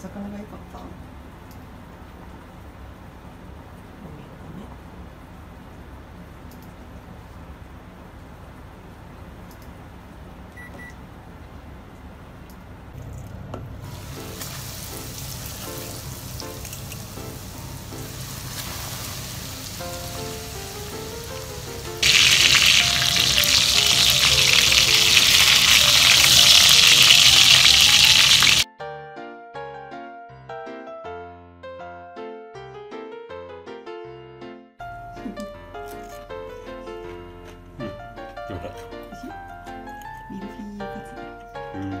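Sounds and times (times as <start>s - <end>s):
cutlets sizzling in oil: 13.9s - 28.7s.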